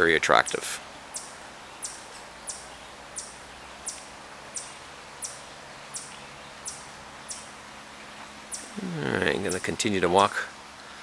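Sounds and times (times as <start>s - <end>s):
faint steady hum: 0.0s - 11.0s
bird high chip call: 6.0s - 7.5s.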